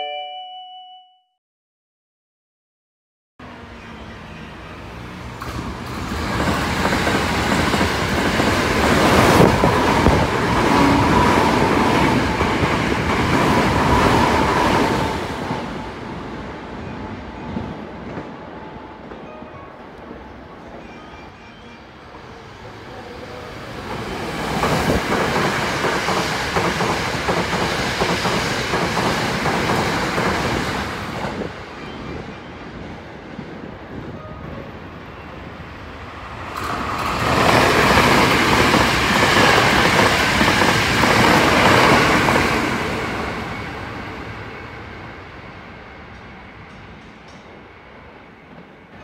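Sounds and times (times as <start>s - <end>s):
electric trains passing at speed: 3.4s - 49.0s.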